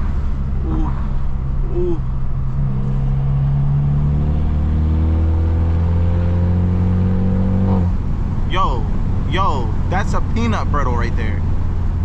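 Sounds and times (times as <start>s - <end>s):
car engine and exhaust droning: 0.0s - 12.0s.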